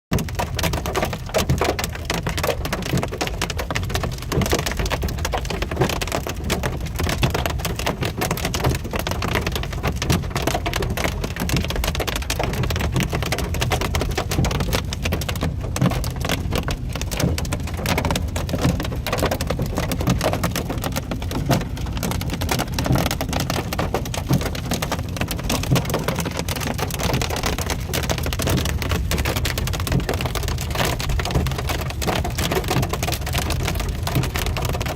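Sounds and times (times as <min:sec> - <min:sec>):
hail pelting car roof: 0:00.1 - 0:34.9
low rumble of moving car: 0:00.1 - 0:34.9.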